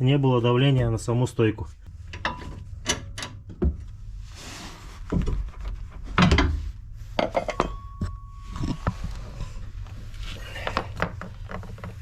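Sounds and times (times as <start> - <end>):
tools knocking and clunking: 2.1 - 3.9.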